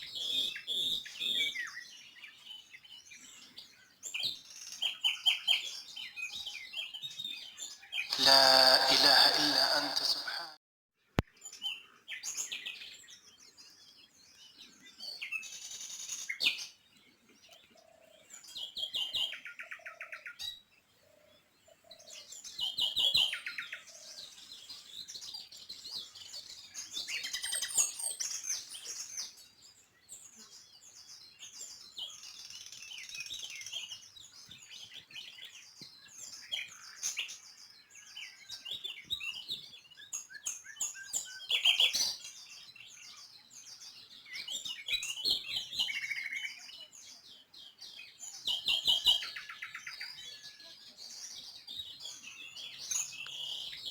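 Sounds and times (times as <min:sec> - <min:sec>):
songbirds chirping: 0:00.0 - 0:53.9.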